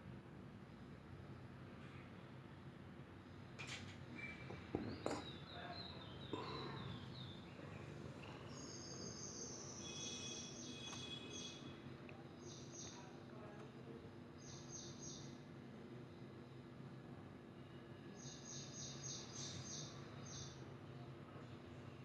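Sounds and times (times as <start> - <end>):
faint high-pitched chirping: 4.2 - 11.8
soft knocks: 4.4 - 5.4.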